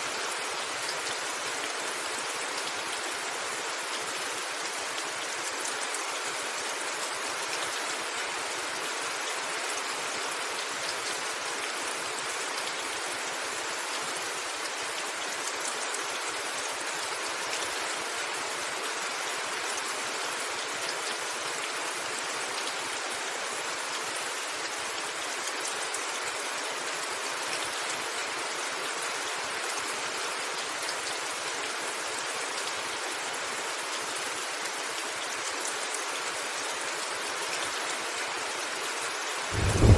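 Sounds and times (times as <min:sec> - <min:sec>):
rain falling on a rooftop: 0:00.0 - 0:39.9.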